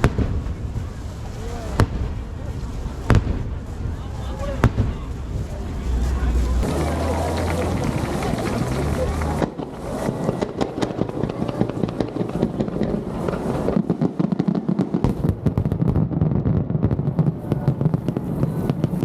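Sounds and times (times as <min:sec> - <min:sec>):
continuous low rumble: 0:00.0 - 0:10.0
fireworks bursting with bangs and crackles: 0:00.0 - 0:19.0.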